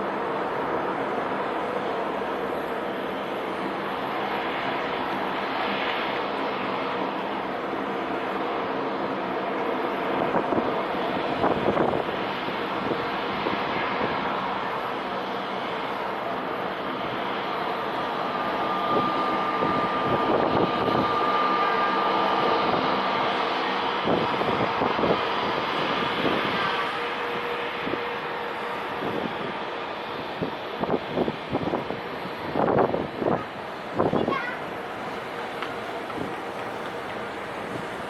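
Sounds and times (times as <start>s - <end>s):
jet engines roaring: 0.0s - 38.0s
wind buffeting microphone: 10.0s - 14.7s, 17.8s - 38.0s.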